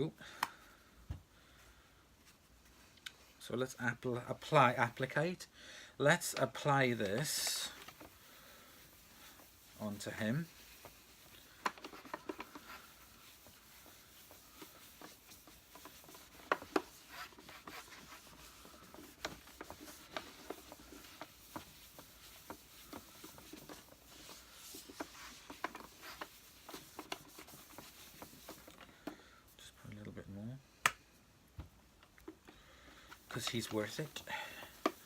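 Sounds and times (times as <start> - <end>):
sponge pad scuffing plastic: 6.2 - 28.8, 33.1 - 35.0.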